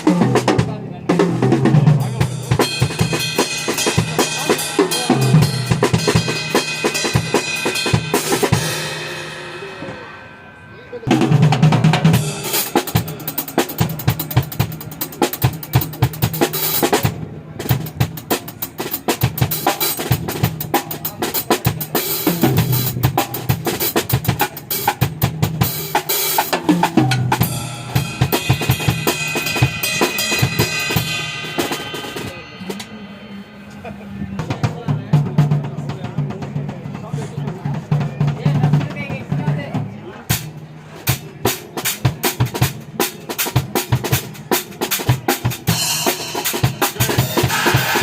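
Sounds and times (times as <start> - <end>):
drum kit playing: 0.0 - 10.4, 11.0 - 48.0
cymbals ringing: 2.0 - 15.2, 27.2 - 34.4, 45.7 - 48.0.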